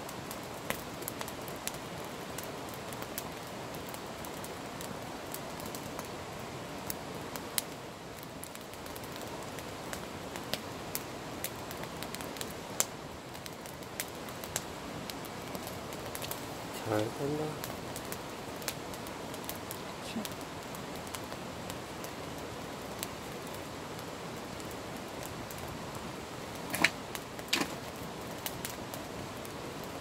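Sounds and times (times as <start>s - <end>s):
campfire flames hissing: 0.0s - 30.0s
logs popping and snapping: 26.6s - 28.0s.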